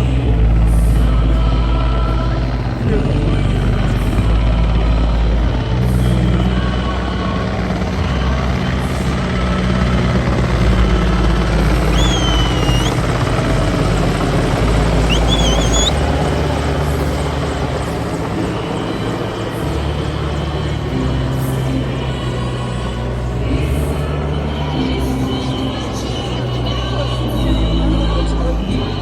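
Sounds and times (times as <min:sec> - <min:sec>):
helicopter rotor chopping: 0:09.5 - 0:19.5
short high whistles: 0:11.9 - 0:13.0, 0:15.0 - 0:16.0.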